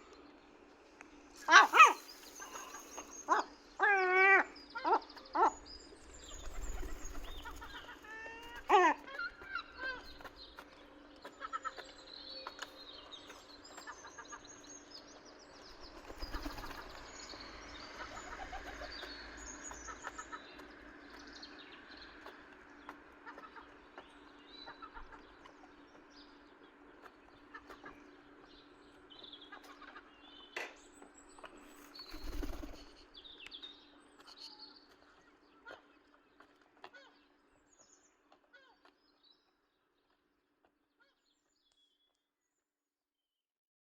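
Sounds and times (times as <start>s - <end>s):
seagulls calling: 1.4s - 14.4s.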